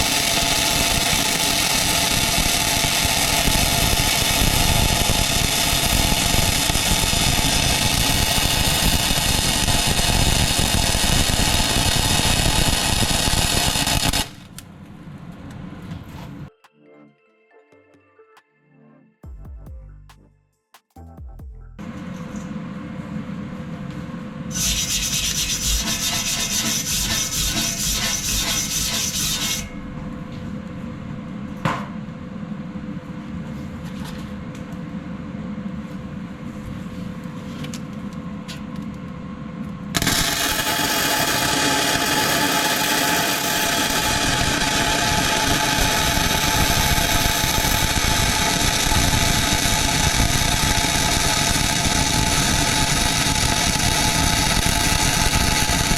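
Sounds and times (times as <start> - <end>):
power tool grinding steel: 0.0 - 14.3, 24.5 - 29.7, 40.0 - 55.9.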